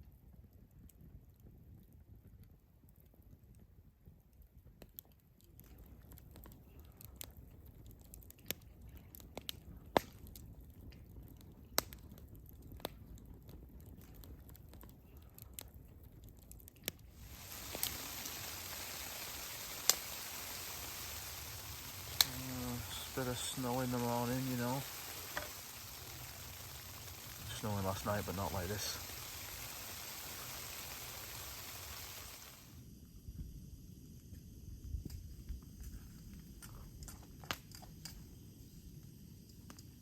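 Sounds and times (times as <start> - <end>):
sharp clicks and pops: 16.2 - 32.6
food frying sizzle: 17.1 - 32.8.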